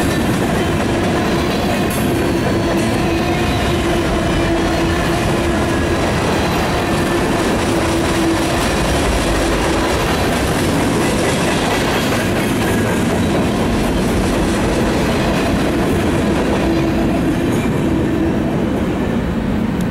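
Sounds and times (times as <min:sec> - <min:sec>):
clickety-clack of rail joints: 0:00.0 - 0:19.9
freight train wheels rumbling: 0:00.0 - 0:19.9.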